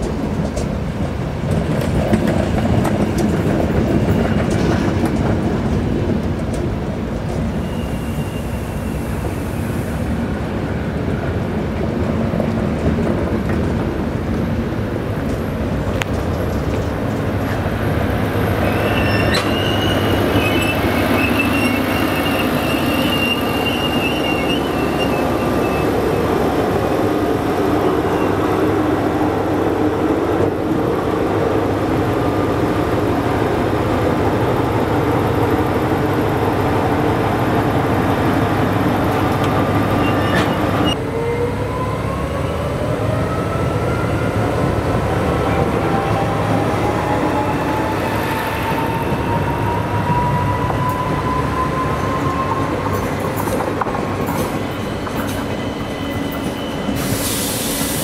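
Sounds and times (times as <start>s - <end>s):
train rumbling on rails: 0.0s - 58.0s
thin high squeal: 18.7s - 25.8s.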